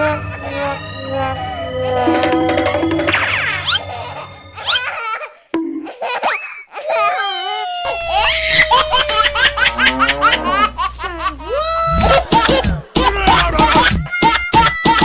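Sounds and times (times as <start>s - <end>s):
cartoon background music: 0.0s - 6.6s, 7.9s - 15.0s
young child laughing: 4.6s - 15.0s.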